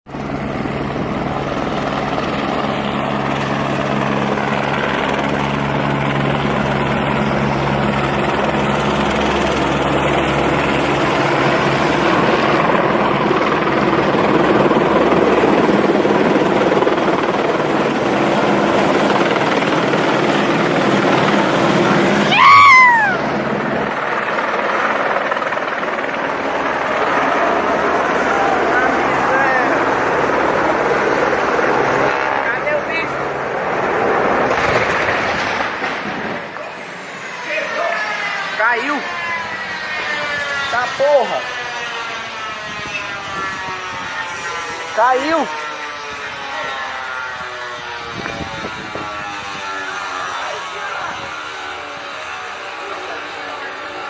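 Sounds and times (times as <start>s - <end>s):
helicopter flying overhead: 0.1s - 54.0s
loud pitched sound sliding downward: 21.5s - 23.6s.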